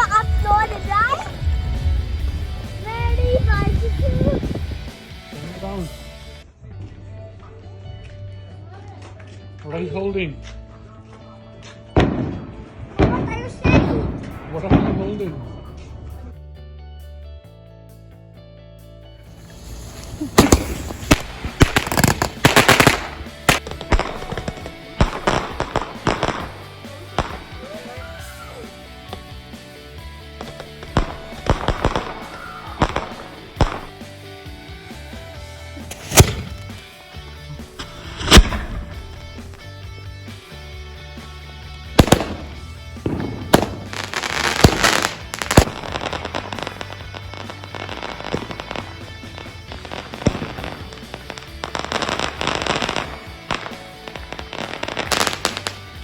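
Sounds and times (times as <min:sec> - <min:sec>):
fireworks popping and crackling: 0:19.4 - 0:28.4, 0:30.4 - 0:34.2, 0:35.8 - 0:37.0, 0:37.8 - 0:39.7, 0:42.0 - 0:56.0.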